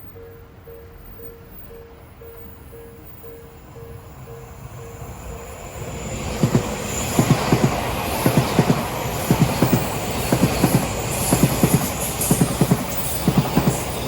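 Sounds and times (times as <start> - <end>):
train running rumble: 4.1 - 14.0
wheels clacking over rail joint: 6.4 - 14.0.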